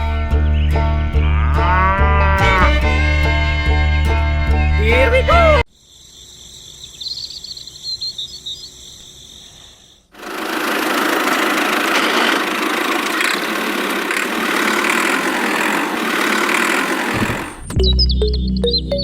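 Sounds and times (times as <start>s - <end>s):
faint bird chirps: 5.7s - 10.1s
small motor-driven machine running: 10.2s - 17.7s.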